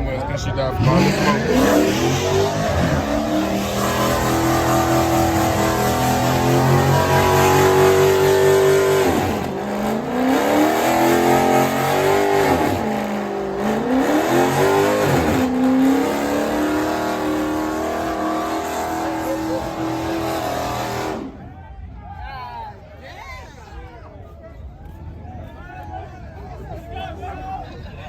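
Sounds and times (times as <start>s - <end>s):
car engine revving high: 0.8s - 21.4s
spinning tyres hissing: 0.8s - 21.4s.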